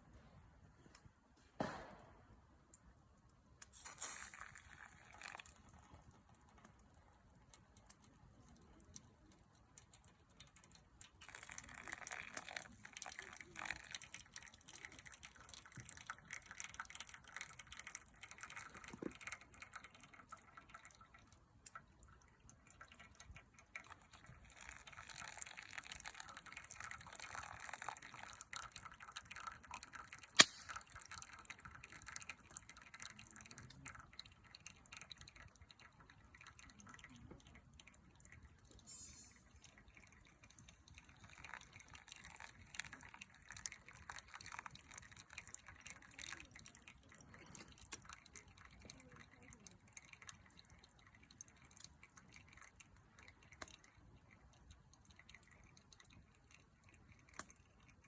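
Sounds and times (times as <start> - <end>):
small wood fire crackling: 2.7 - 15.9, 30.2 - 32.0.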